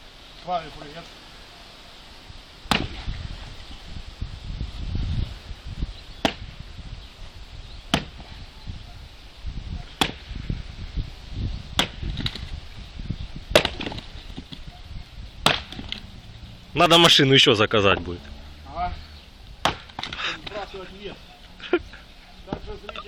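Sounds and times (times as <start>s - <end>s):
axe chopping wood: 2.7s - 3.1s, 6.2s - 6.6s, 7.9s - 8.4s, 10.0s - 10.4s, 11.7s - 12.5s, 13.5s - 14.6s, 15.4s - 16.0s, 19.6s - 20.7s.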